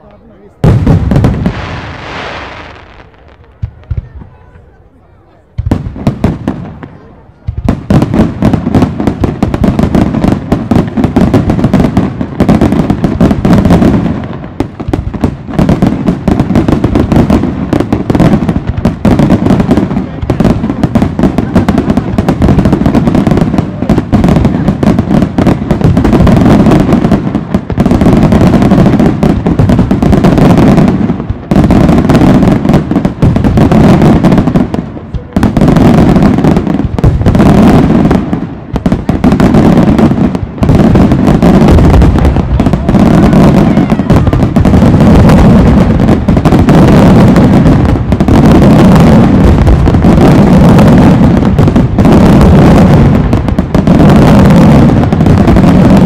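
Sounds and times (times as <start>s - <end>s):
fireworks bursting and crackling: 0.0s - 56.0s.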